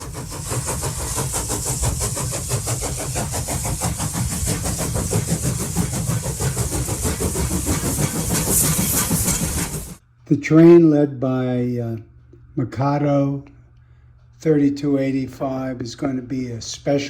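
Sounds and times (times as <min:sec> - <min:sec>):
model steam locomotive chuffing: 0:00.0 - 0:10.0.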